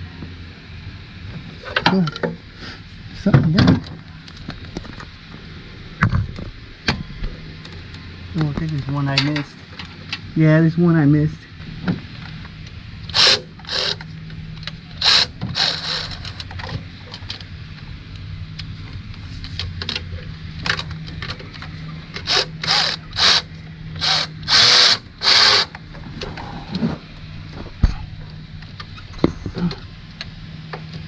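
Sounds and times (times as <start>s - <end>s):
low steady hum: 0.0s - 31.0s
power tool bursts: 13.1s - 14.0s, 15.0s - 16.5s, 22.2s - 25.8s.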